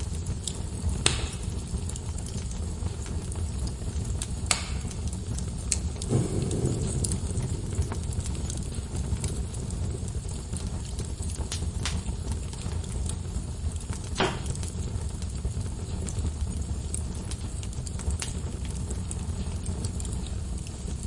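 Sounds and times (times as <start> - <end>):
fire crackling and popping: 0.0 - 21.0
fire flames rumbling: 0.0 - 21.0
low rush: 6.0 - 10.0.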